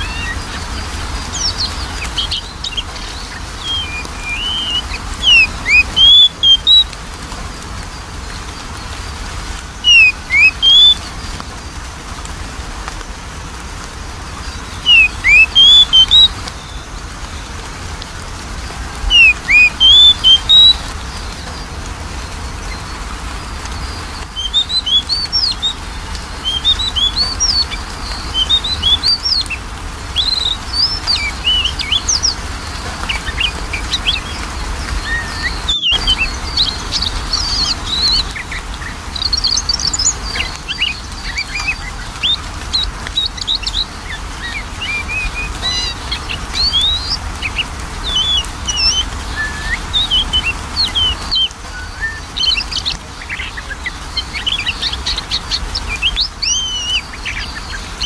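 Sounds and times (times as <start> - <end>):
bird singing whistled notes: 0.0 - 7.0, 9.7 - 11.4, 14.4 - 17.5, 19.0 - 21.7, 23.7 - 58.0.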